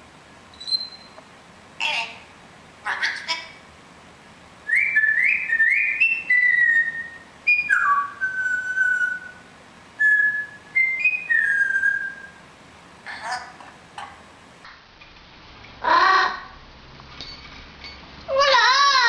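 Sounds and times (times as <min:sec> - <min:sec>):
parrot whistling: 0:00.5 - 0:01.2, 0:04.6 - 0:12.4.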